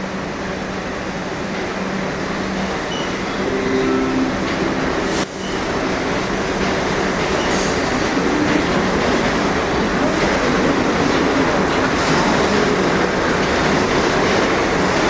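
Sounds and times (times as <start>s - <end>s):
train wheels rumbling on rail: 0.0s - 3.6s, 4.5s - 15.0s.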